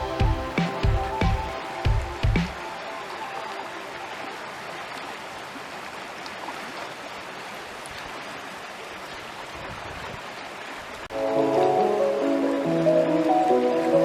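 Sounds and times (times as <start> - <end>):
stream water flowing: 0.0 - 14.0.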